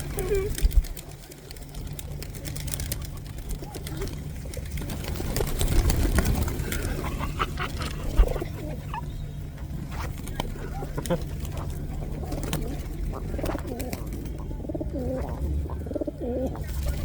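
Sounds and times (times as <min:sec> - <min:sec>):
pigeon wingbeats and scuffling: 0:00.0 - 0:17.0.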